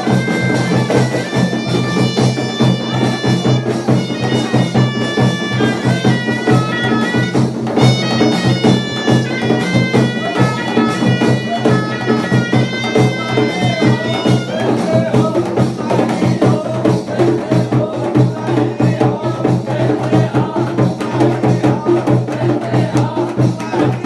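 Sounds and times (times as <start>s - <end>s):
shawms playing melody with drone: 0.0s - 16.6s
pulsing drum beat: 0.0s - 24.0s.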